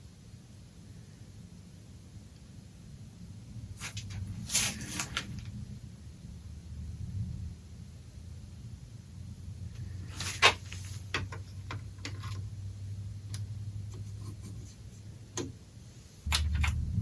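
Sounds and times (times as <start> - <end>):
tube radio low hum: 0.0 - 17.0.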